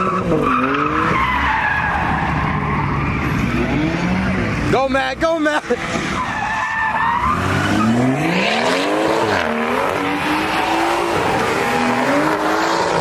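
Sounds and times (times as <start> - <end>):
tires squealing: 0.0 - 13.0
car engine revving hard: 3.1 - 4.7, 7.0 - 13.0.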